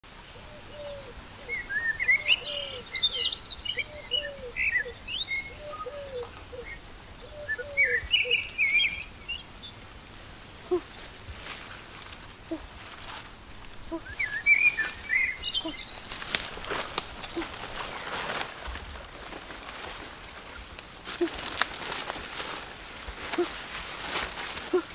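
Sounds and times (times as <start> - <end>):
lower bird call: 0.3 - 9.8, 13.8 - 18.5
birds chirping and trilling: 0.3 - 20.1.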